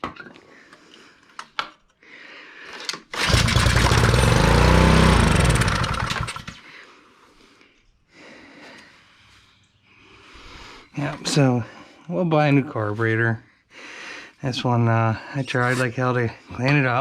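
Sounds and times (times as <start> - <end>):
small gas engine starting and dying: 3.0 - 6.7.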